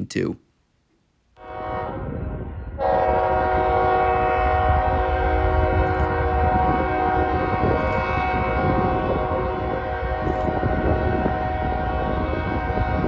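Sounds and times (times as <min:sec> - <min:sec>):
locomotive air horn blast: 0:01.4 - 0:13.0
low rumble of train: 0:01.4 - 0:13.0.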